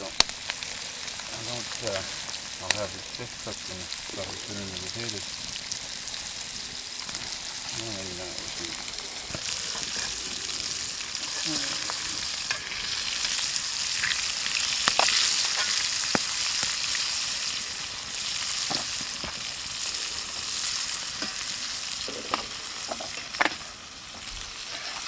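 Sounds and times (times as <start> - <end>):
oil popping: 0.0 - 17.2
fish sizzling in hot oil: 0.0 - 25.0.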